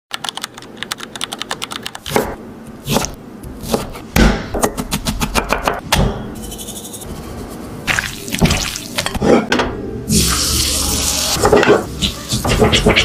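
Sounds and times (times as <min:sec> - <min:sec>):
knife chopping on cutting board: 0:02.1 - 0:06.2.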